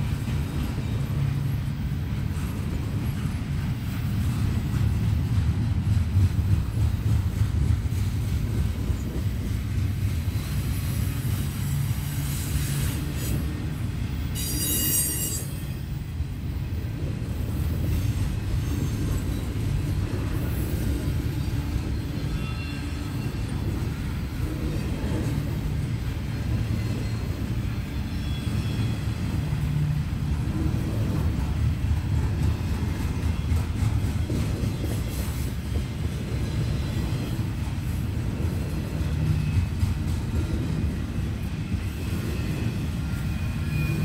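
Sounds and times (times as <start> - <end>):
train wheels rumbling on rail: 0.0 - 44.0
high-pitched wheel squeal: 14.4 - 15.7.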